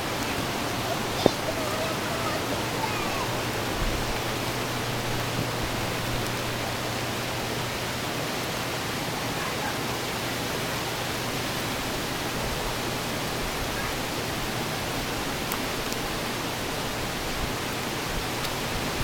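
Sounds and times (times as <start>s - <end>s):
low steady hum: 0.0s - 8.0s
rush of floodwater: 0.0s - 19.0s.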